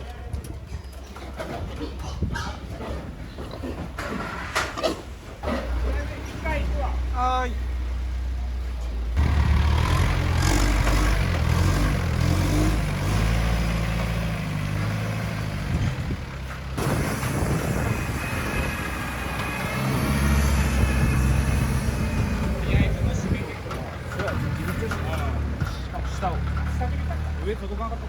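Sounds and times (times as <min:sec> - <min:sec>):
truck engine running: 0:05.6 - 0:28.0.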